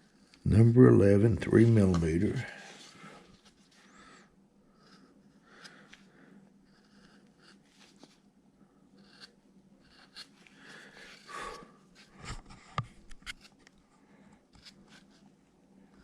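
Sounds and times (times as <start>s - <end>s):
gouge scraping wood: 6.6s - 8.1s, 9.0s - 12.2s.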